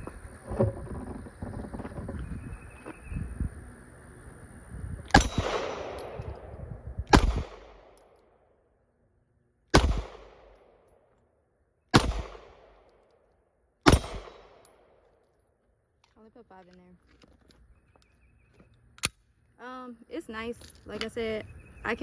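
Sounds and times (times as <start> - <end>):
pistol shots: 5.1 - 8.1, 9.7 - 10.8, 11.9 - 13.0, 13.8 - 15.0.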